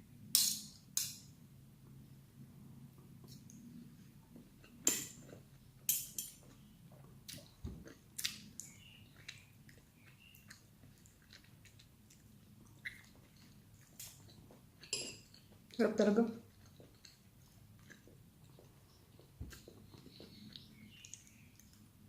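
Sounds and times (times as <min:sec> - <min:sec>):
cutlery clicking on a plate: 0:05.9 - 0:06.4
chewing: 0:06.3 - 0:15.8, 0:16.4 - 0:22.0.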